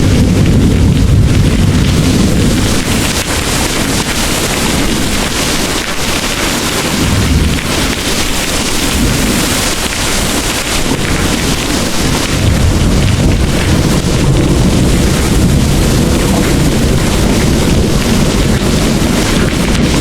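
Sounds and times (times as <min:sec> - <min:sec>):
heavy rain pouring: 0:00.0 - 0:20.0
low rolling thunder: 0:00.0 - 0:20.0.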